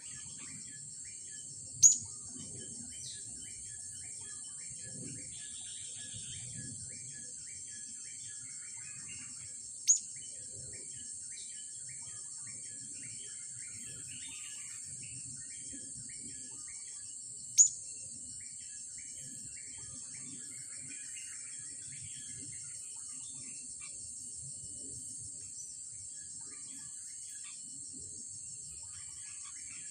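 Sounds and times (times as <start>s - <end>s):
high drone of insects: 0.0s - 29.9s
bird short chirps: 1.8s - 2.1s.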